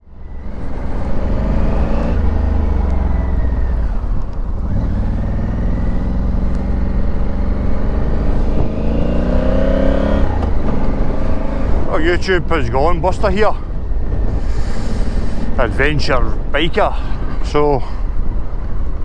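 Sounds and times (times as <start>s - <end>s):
motorcycle engine accelerating: 0.1s - 13.0s.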